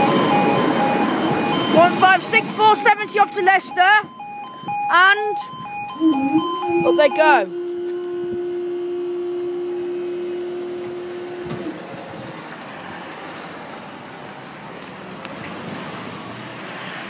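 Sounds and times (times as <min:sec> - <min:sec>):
level crossing alarm tone: 0:00.0 - 0:12.2.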